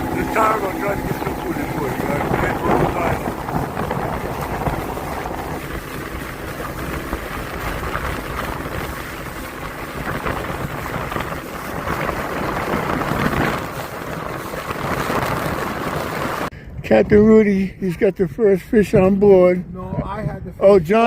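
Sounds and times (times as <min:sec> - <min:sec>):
boat motor running: 0:00.0 - 0:16.8
wind buffeting microphone: 0:00.0 - 0:21.0.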